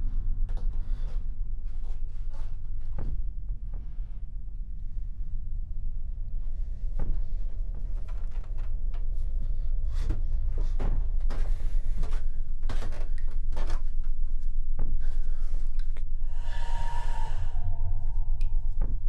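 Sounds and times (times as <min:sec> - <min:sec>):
steady low rumble: 0:00.0 - 0:19.0
door knocking and creaking: 0:10.0 - 0:14.2.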